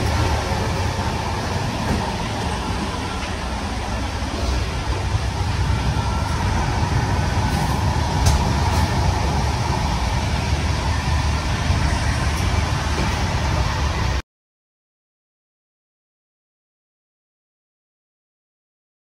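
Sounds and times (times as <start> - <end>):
moving train rumble: 0.0 - 14.2.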